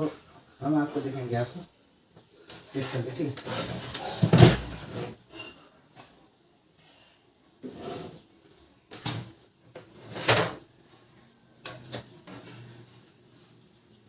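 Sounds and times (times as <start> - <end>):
plastic parts clunking and scraping: 3.4 - 5.2.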